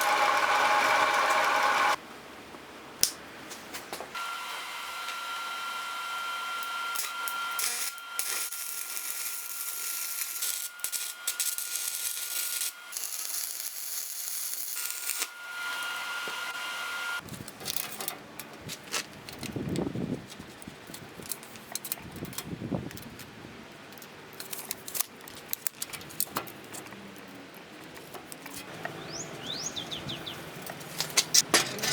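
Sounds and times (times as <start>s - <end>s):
power tool grinding whine: 0.0s - 2.0s, 4.2s - 17.2s.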